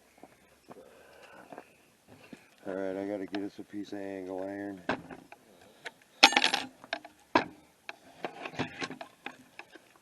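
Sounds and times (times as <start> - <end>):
metal pieces clinking and clanking: 6.2 - 6.7.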